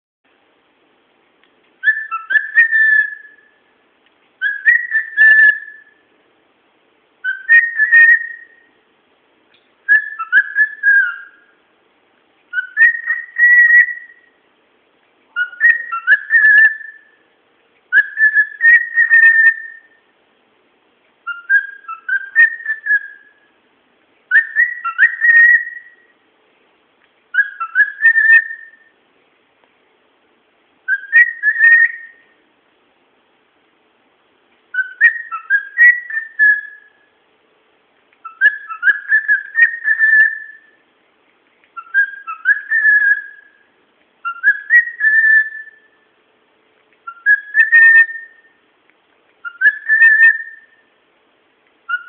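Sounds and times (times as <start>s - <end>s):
cockatiel whistling a tune: 1.8s - 3.6s, 4.4s - 6.0s, 7.2s - 8.7s, 9.9s - 11.6s, 12.5s - 14.4s, 15.4s - 17.2s, 17.9s - 20.0s, 21.2s - 23.5s, 24.3s - 26.1s, 27.3s - 28.9s, 30.9s - 32.4s, 34.7s - 37.0s, 38.2s - 40.8s, 41.8s - 43.6s, 44.2s - 46.0s, 47.0s - 48.6s, 49.4s - 50.8s.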